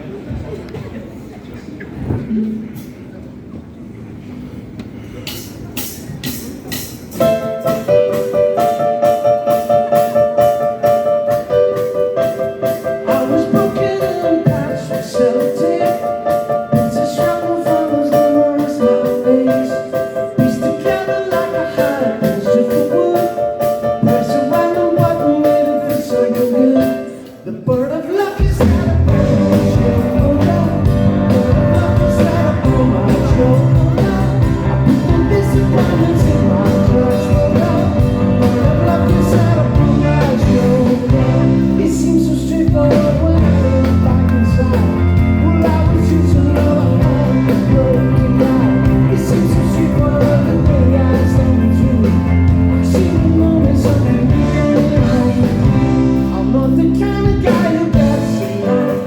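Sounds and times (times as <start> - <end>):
live rock band playing: 5.8 - 27.2, 28.4 - 59.0
steady drum beat: 28.4 - 42.0, 42.6 - 56.5, 57.2 - 58.9.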